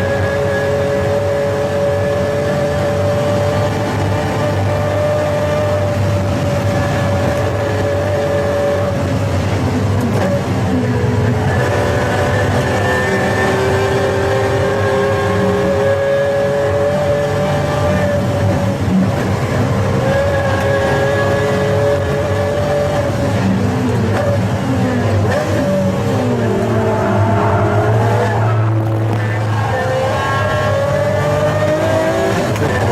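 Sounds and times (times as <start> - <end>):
car engine running hard: 0.0 - 32.9.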